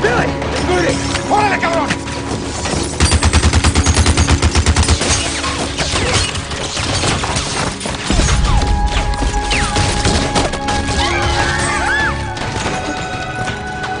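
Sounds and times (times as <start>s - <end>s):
impacts and crashes: 4.9s - 13.1s.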